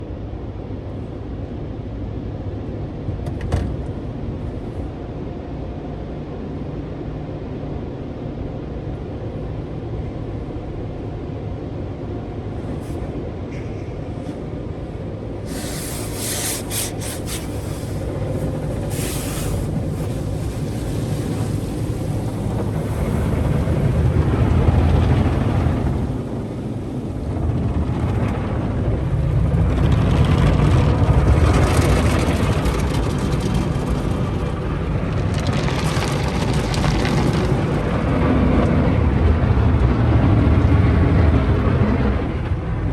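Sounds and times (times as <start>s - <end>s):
low rumble of car wash machinery: 0.0s - 42.9s
short hissing bursts: 15.5s - 23.9s.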